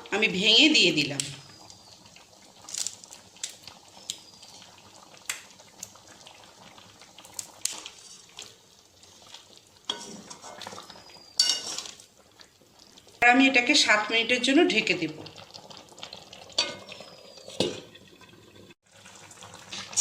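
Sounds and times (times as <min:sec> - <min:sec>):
faint bubbling simmer: 0:00.0 - 0:20.0
metal spatula scraping a pan: 0:07.9 - 0:08.5, 0:09.9 - 0:10.8, 0:11.4 - 0:12.0.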